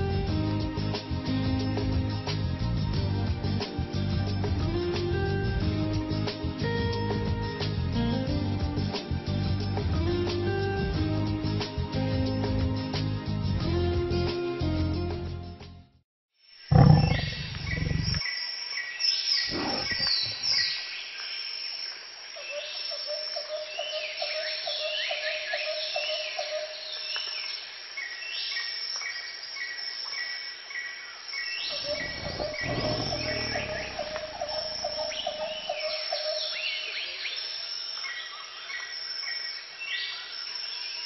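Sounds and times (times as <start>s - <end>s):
birds chirping and calling: 16.7s - 18.2s, 19.5s - 20.7s, 31.7s - 36.6s
low rumble: 16.7s - 18.2s
tiger roaring: 16.7s - 18.2s, 19.5s - 20.6s, 31.8s - 35.2s.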